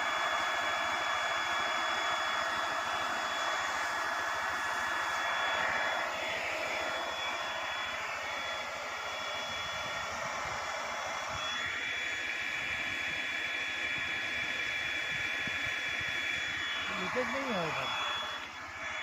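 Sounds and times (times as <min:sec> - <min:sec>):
fan whine: 0:00.0 - 0:19.0
hot air gun blowing: 0:16.5 - 0:18.8.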